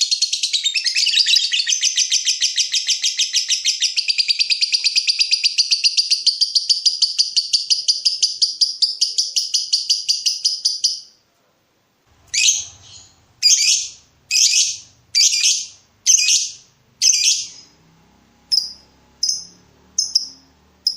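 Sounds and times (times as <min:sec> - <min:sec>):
harsh bird calls: 0:12.1 - 0:20.9
bird chattering trill: 0:12.2 - 0:17.8, 0:18.5 - 0:20.9
short bird chirps: 0:12.2 - 0:17.8.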